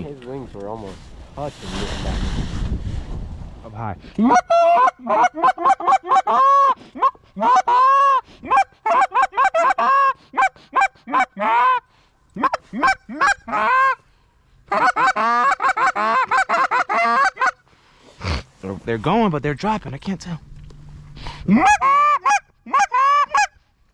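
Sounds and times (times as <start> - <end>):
goose honks and clucks: 4.2 - 11.8, 12.4 - 14.0, 14.7 - 17.6, 21.5 - 23.6.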